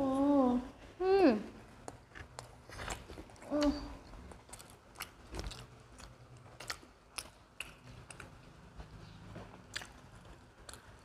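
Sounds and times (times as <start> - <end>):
mouth clicks and smacks of eating: 1.8 - 8.5, 9.5 - 11.0.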